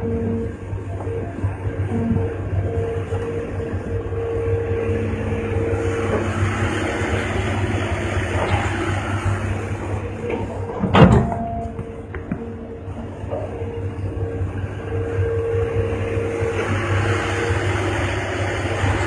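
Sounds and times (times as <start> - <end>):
heavy machinery engine hum: 0.0 - 19.0
loud clunk: 10.7 - 11.5.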